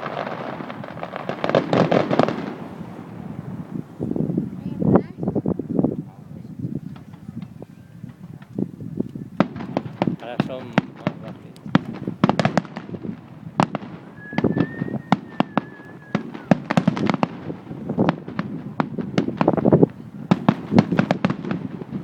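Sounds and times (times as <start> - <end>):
fireworks bangs and crackles: 0.0 - 22.0
firework whistle: 13.6 - 17.3.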